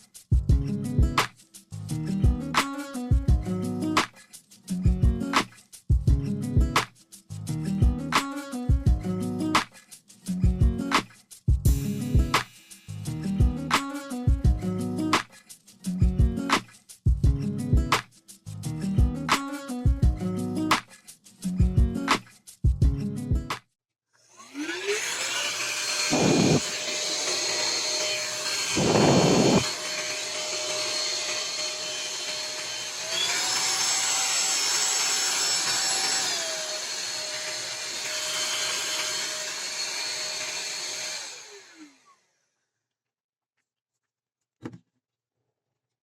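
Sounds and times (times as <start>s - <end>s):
vacuum cleaner motor whine: 24.3s - 42.1s
loud bursts of rushing noise: 28.3s - 29.7s.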